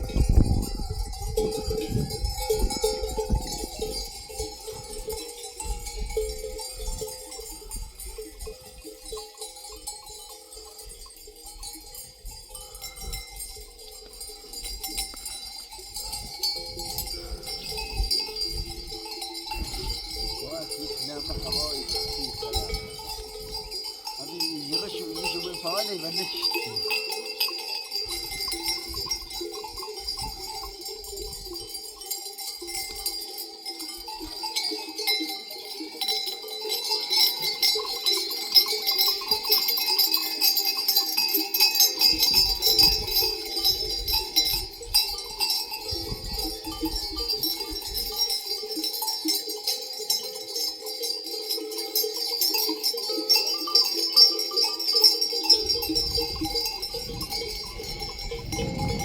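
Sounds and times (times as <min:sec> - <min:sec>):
metal animal bells clanking: 0:00.0 - 0:59.0.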